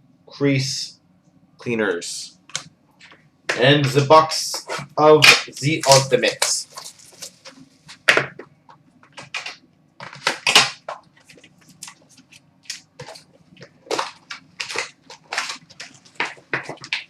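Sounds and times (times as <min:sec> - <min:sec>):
plastic wrap crinkling: 0:05.4 - 0:08.4, 0:09.0 - 0:17.0
plastic wrap tearing: 0:09.2 - 0:17.0.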